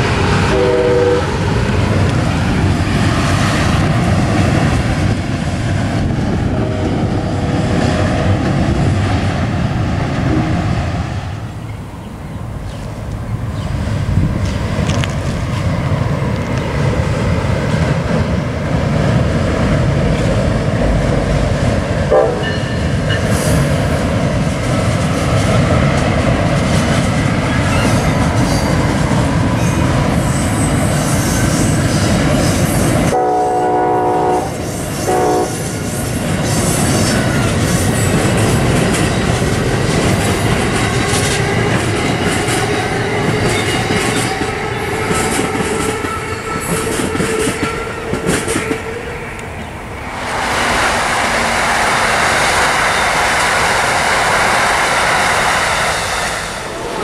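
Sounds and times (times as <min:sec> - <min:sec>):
train wheels running on rails: 0:00.0 - 0:57.0
train horn: 0:00.4 - 0:01.4, 0:06.6 - 0:07.1, 0:22.1 - 0:22.8, 0:33.1 - 0:35.7.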